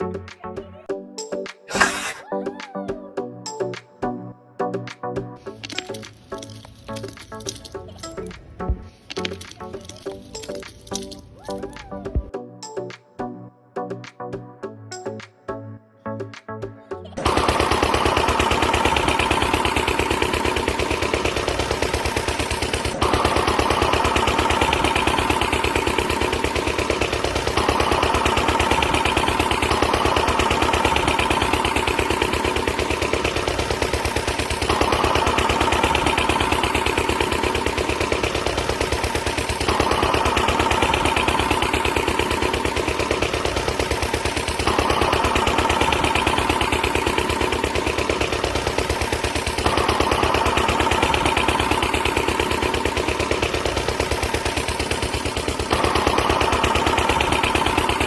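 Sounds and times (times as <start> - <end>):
machine rattling with whine: 5.5 - 8.4, 17.2 - 58.0.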